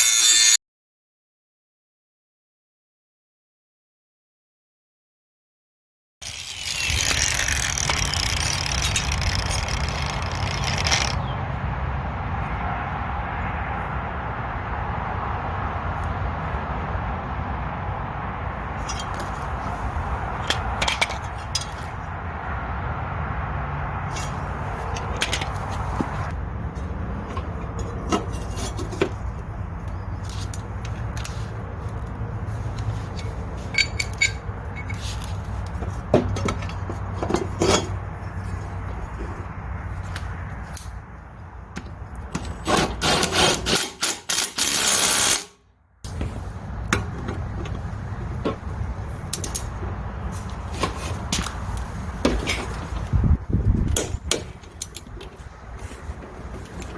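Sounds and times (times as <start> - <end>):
tool clinks and scraping: 0.0 - 0.6, 6.2 - 11.2, 18.8 - 19.8, 20.4 - 22.0, 24.1 - 39.4, 42.2 - 45.5, 46.9 - 53.2.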